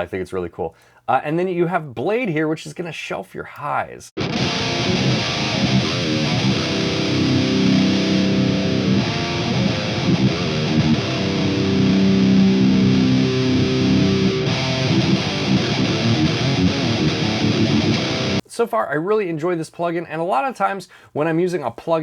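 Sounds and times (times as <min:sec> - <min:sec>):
distorted electric guitar riffs: 0:04.2 - 0:18.4.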